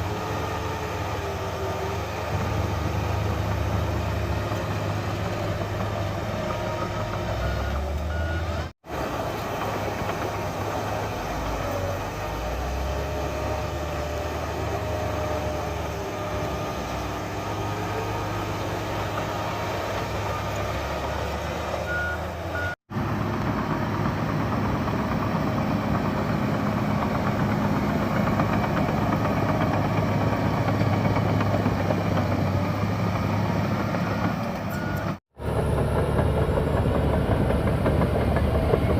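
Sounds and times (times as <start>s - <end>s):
bulldozer diesel engine rumbling: 0.0s - 38.9s.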